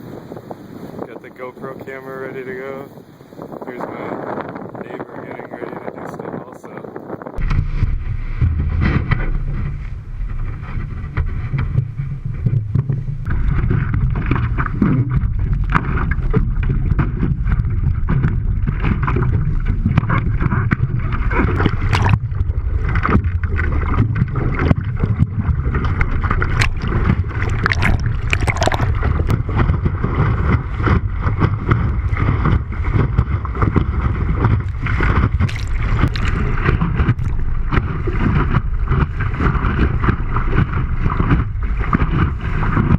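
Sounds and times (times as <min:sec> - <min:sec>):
wind buffeting microphone: 0:00.0 - 0:42.9
water slapping against board: 0:07.4 - 0:42.9
water splashing: 0:07.4 - 0:42.9.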